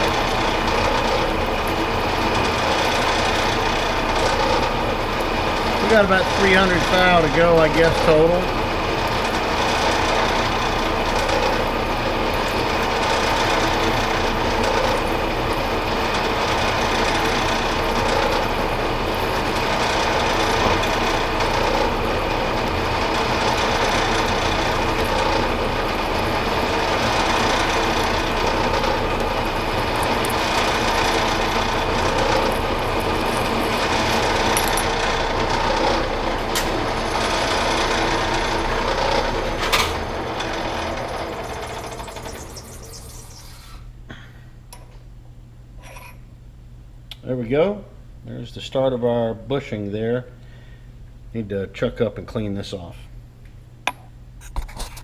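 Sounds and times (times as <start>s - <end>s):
metal lathe cutting: 0.0s - 43.6s.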